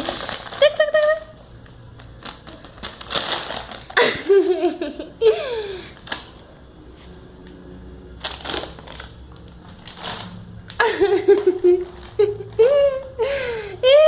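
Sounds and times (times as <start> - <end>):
plastic bag rustling: 0.0 - 4.9, 8.1 - 13.0.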